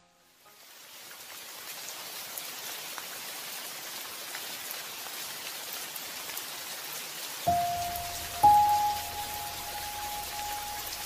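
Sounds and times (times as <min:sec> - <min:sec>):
rain falling: 0:00.1 - 0:11.0
rain drop taps: 0:07.5 - 0:11.0
sustained musical note: 0:07.5 - 0:11.0.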